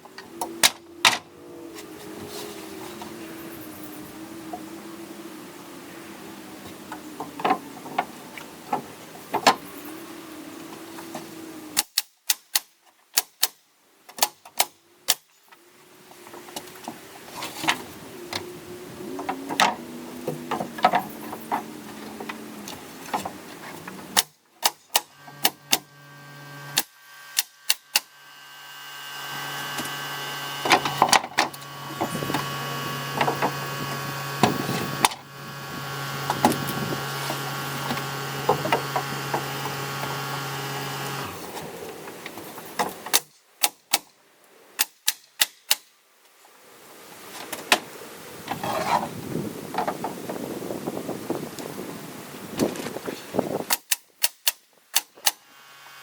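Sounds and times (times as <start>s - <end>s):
steady motor hum: 25.0s - 42.0s.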